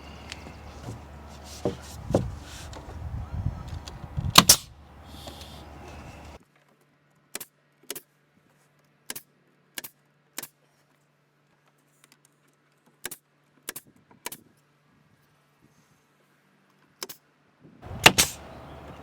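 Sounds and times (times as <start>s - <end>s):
faint steady hum: 0.0s - 6.4s
sharp double knocks: 17.9s - 19.0s.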